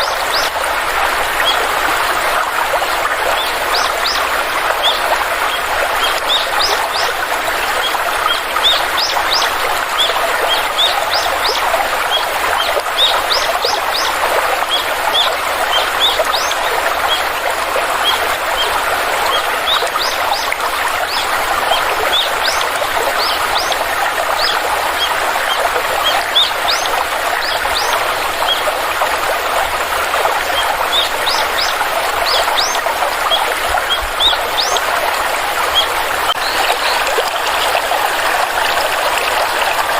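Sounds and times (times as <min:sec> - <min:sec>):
stream water flowing: 0:00.0 - 0:39.9
small birds chirping: 0:03.2 - 0:17.3, 0:17.9 - 0:28.7, 0:30.4 - 0:34.9.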